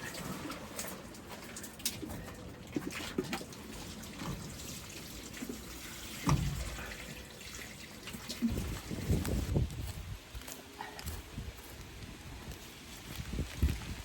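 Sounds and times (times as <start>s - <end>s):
rain dripping and pattering: 0.0s - 9.9s.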